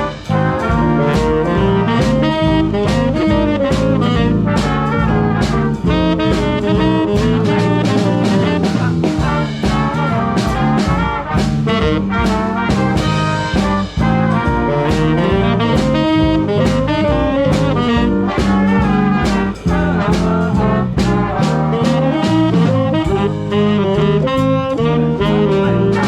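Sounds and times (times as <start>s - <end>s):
steady drum beat: 0.0s - 26.0s
swing band playing: 0.0s - 26.0s.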